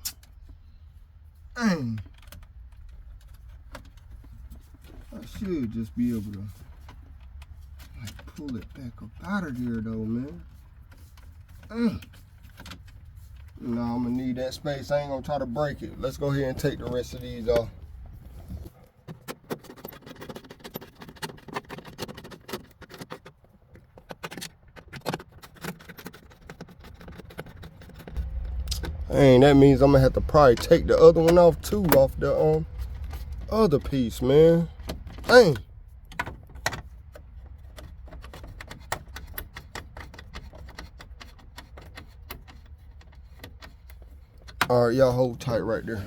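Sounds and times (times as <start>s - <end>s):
small parts clicking and rattling: 19.1s - 44.8s
steady low hum: 28.1s - 35.6s.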